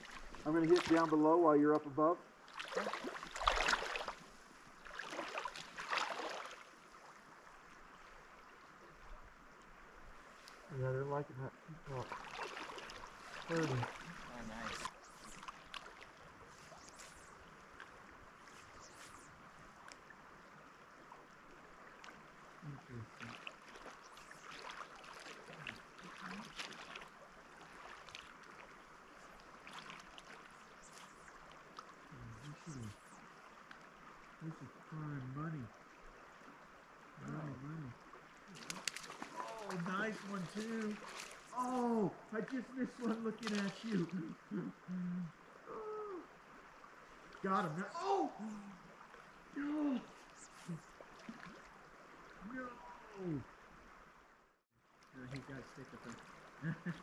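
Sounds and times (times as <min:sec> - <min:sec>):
river water rushing: 0:00.0 - 0:01.4, 0:02.2 - 0:10.6, 0:11.9 - 0:32.1, 0:38.0 - 0:44.0
water splashing: 0:00.0 - 0:07.5, 0:11.7 - 0:20.3, 0:20.9 - 0:54.1, 0:55.1 - 0:57.0.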